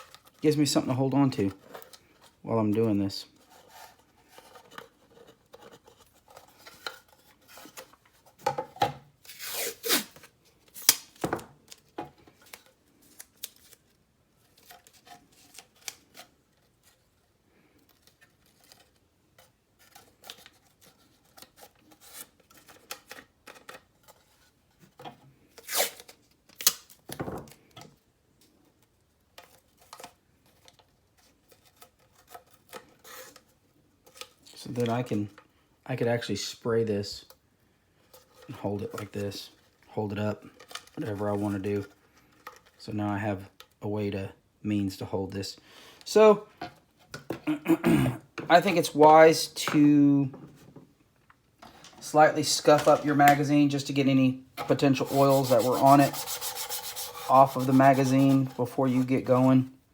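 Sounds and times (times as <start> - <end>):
handling plastic: 0.0 - 35.4, 38.0 - 42.8, 51.6 - 59.8
tape ripping off roll: 9.3 - 11.4, 25.6 - 27.1.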